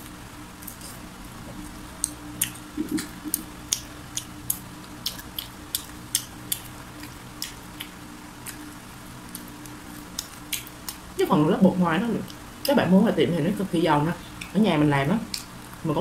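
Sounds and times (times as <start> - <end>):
steady low hum: 0.0 - 16.0
crisp chewing crunches: 0.6 - 11.1.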